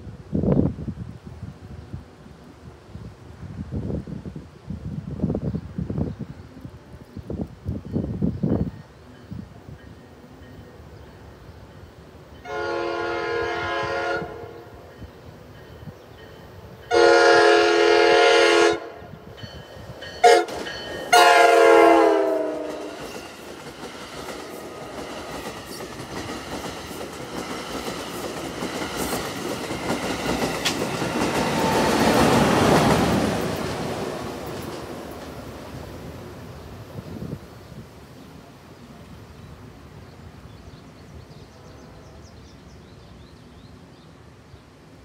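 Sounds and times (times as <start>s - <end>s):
locomotive passing: 7.8s - 40.4s
train horn blasts: 12.4s - 14.9s, 16.9s - 19.2s, 20.2s - 23.2s
train coaches clickety-clack: 19.3s - 35.9s.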